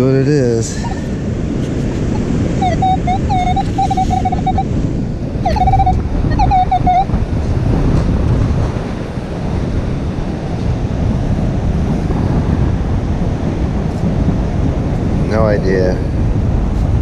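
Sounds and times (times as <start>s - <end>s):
wind buffeting the microphone: 0.0s - 17.0s
metal detector warbling tone: 2.1s - 4.7s, 5.4s - 7.2s.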